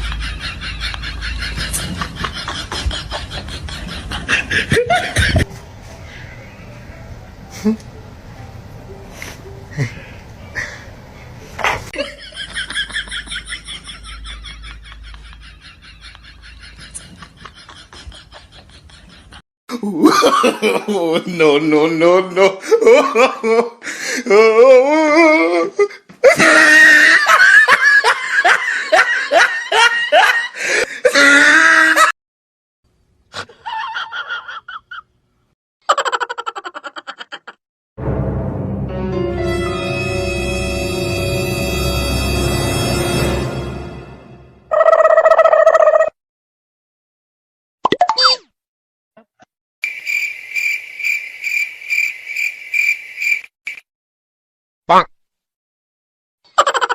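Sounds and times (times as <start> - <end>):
high-pitched laughter: 24.9 - 32.1, 33.4 - 35.1, 35.9 - 37.6, 44.7 - 46.2, 56.5 - 56.9
cricket-like chirping: 49.8 - 53.8.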